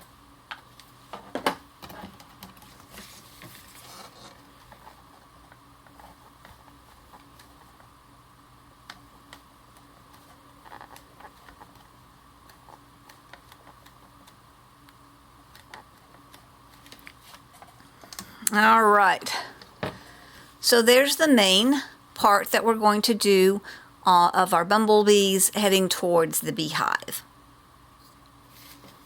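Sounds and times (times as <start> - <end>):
paper scraping rustle: 2.7 - 5.0.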